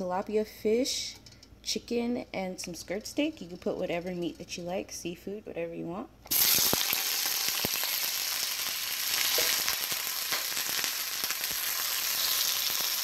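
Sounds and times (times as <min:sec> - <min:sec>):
meat sizzling in hot oil: 0:06.3 - 0:13.0.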